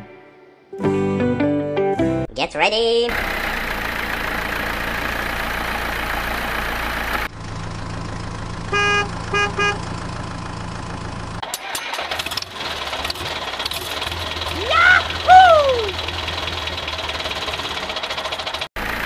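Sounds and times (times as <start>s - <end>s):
truck engine: 3.1s - 19.0s
truck engine idling: 3.1s - 19.0s
truck horn honks: 8.6s - 9.9s
sharp clicks and rattling: 11.4s - 15.2s.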